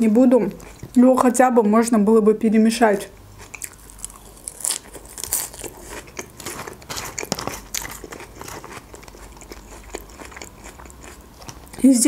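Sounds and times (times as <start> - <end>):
lettuce crunching while chewing: 3.4 - 12.0.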